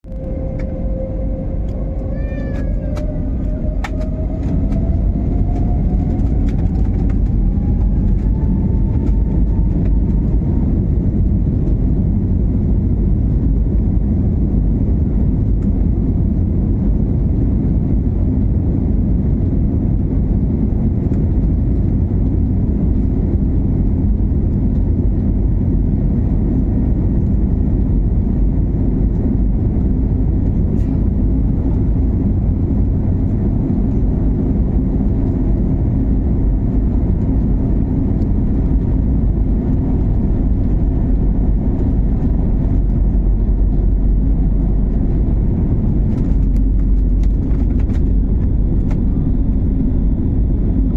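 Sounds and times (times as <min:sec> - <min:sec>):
jet engines roaring: 0:00.0 - 0:13.2.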